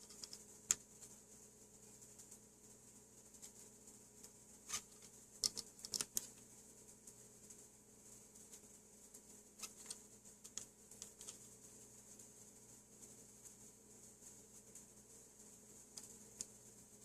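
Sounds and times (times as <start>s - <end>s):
small objects clicking: 0.0s - 0.8s, 4.2s - 6.5s, 9.6s - 11.5s, 15.9s - 16.6s
faint steady hum: 0.0s - 17.0s.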